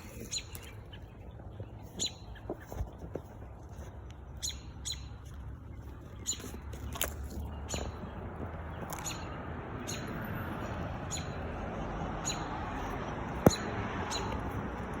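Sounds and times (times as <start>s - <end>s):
bird alarm calls: 4.4s - 5.1s, 8.8s - 10.2s, 13.5s - 14.4s.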